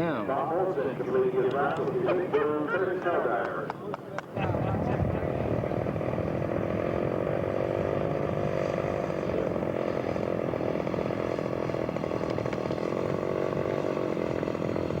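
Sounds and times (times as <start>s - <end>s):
model airplane engine running: 4.4s - 15.0s.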